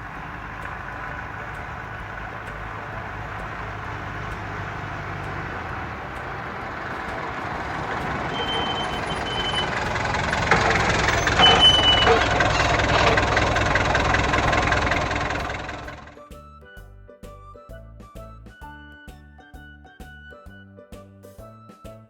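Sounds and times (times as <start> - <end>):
vehicle engine running: 0.0 - 16.3
high beep: 8.3 - 9.6.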